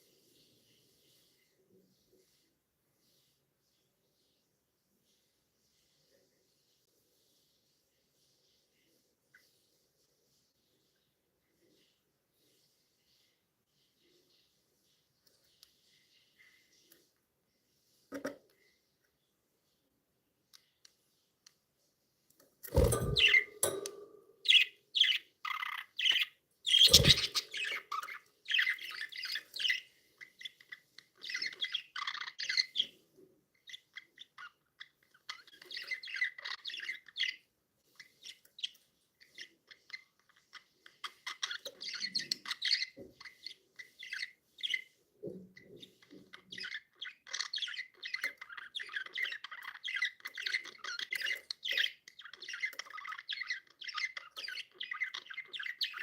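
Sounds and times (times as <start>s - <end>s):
budgerigars chirping: 24.4s - 33.0s, 45.6s - 56.0s.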